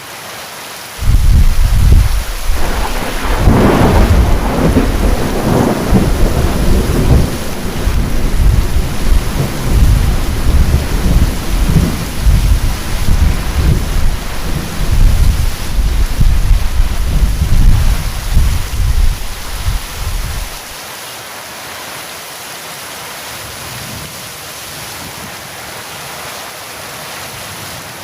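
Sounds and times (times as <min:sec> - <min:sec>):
heavy rain: 0:00.0 - 0:28.0
thunder rumbling: 0:01.0 - 0:20.7.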